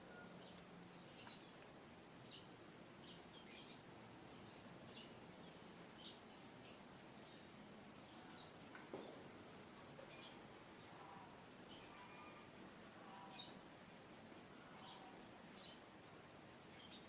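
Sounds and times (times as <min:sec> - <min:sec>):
quiet outdoor hiss: 0:00.0 - 0:17.0.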